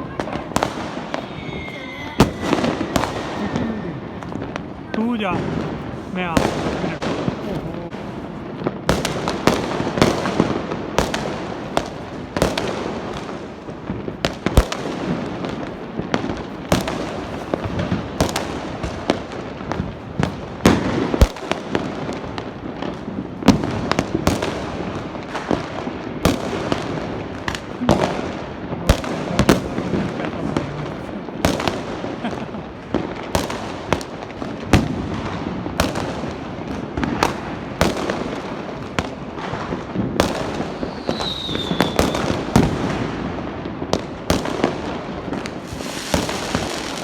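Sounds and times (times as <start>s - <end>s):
firecrackers banging: 0.0s - 47.0s
fireworks crackling and popping: 0.0s - 47.0s.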